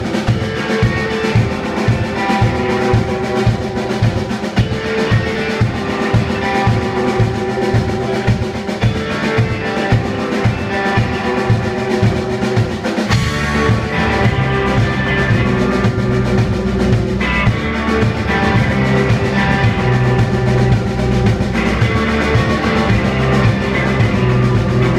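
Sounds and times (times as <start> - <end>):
driving drum kit: 0.0 - 24.9
live rock band playing: 0.0 - 24.9
bass held low notes: 13.1 - 24.9.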